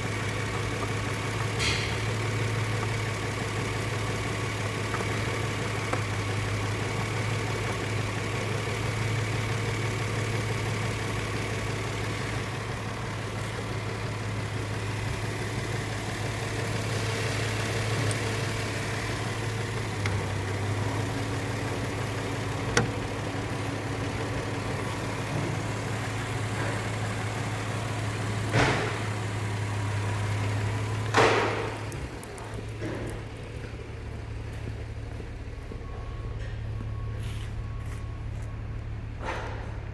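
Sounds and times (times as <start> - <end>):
car engine idling: 0.0 - 39.9
loud thumps: 31.1 - 31.9.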